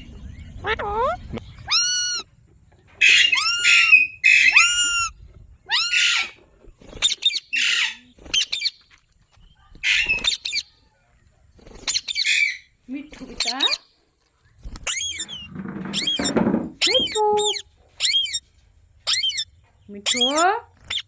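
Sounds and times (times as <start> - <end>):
parrot squawking harshly: 1.7 - 2.3, 3.0 - 6.4, 7.1 - 8.5, 9.8 - 10.6, 11.9 - 12.7.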